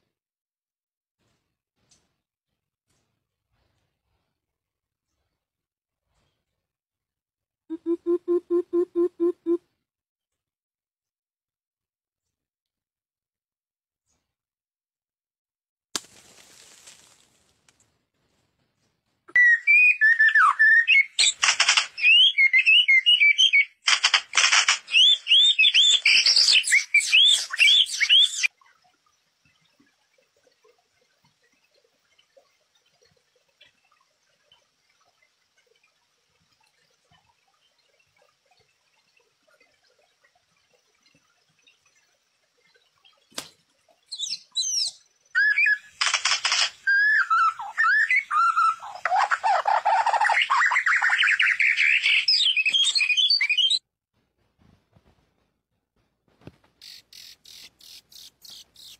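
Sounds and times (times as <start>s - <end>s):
songbird singing whistled phrases: 19.3s - 21.4s, 22.0s - 23.8s, 24.9s - 28.5s, 44.1s - 46.0s, 46.8s - 49.1s, 50.1s - 53.8s
sharp click: 21.3s - 22.0s, 23.9s - 24.9s, 46.0s - 46.8s
harsh rasping bird calls: 56.8s - 58.9s.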